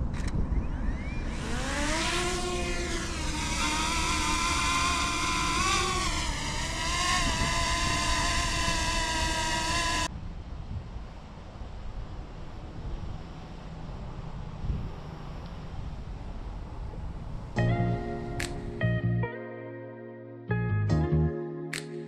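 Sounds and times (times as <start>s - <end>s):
drone motors whining: 0.7s - 10.1s.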